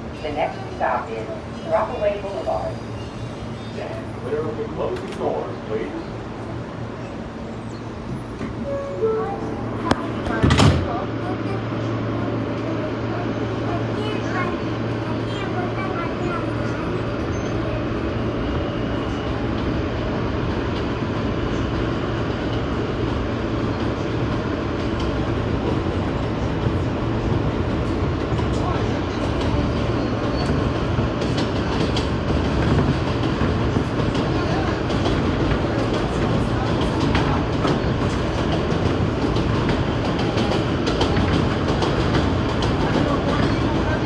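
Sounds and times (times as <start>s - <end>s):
subway train wheels rumbling on rails: 0.0s - 44.0s.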